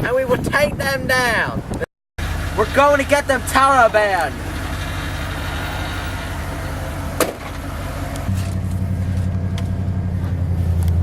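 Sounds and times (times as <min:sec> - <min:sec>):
vehicle engine running: 0:02.2 - 0:11.0.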